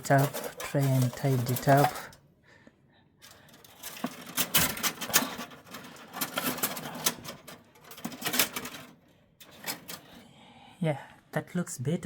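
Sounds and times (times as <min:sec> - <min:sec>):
objects clicking and tapping: 0:00.0 - 0:02.2, 0:03.2 - 0:10.2.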